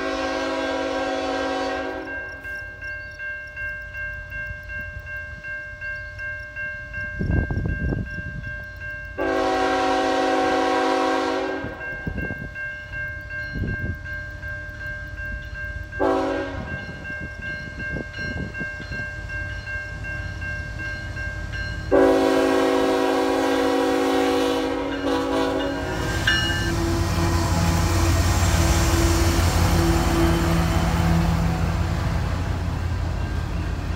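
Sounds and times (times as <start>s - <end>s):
locomotive air horn blasts: 0.0s - 2.2s, 9.2s - 11.8s, 16.0s - 16.8s, 21.9s - 32.5s
passing train rumble: 0.0s - 33.9s.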